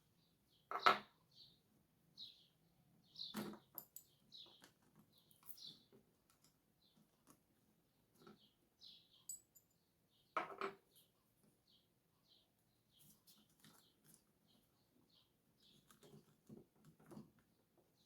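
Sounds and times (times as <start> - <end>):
small parts clicking and tapping: 3.4 - 5.7.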